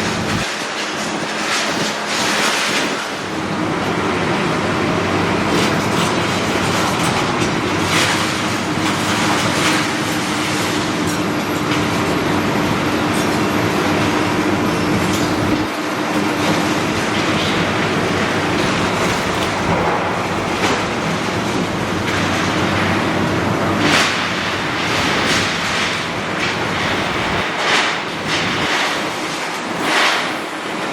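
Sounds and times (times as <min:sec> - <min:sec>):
demolition machinery engine drone: 0:00.0 - 0:30.9
debris knocking and clattering: 0:14.8 - 0:23.0.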